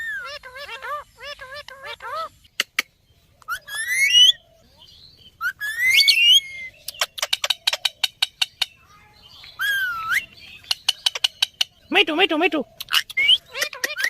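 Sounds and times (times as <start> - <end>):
parrot whistling: 3.5 - 4.4, 5.4 - 7.3, 9.6 - 11.2.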